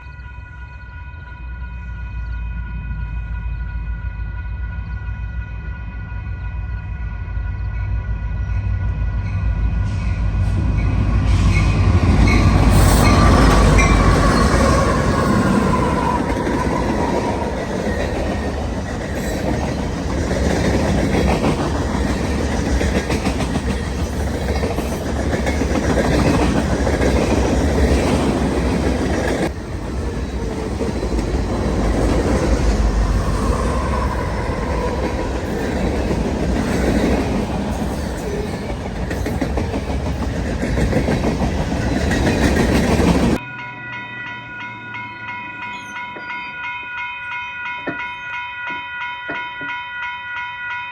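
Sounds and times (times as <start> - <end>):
train wheels rumbling and clacking: 9.0 - 43.4.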